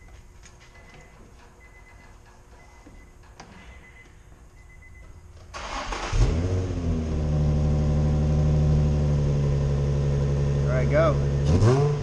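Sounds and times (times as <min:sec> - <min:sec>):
car starter cranking: 0:05.5 - 0:06.6
car engine revving and idling: 0:05.7 - 0:12.0.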